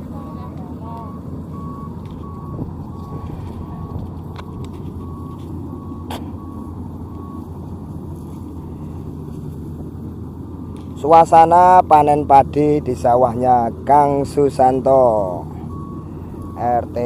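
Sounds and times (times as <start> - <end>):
combine harvester engine droning: 0.0 - 17.0
reversing alarm beeping: 0.1 - 7.5, 15.2 - 17.0.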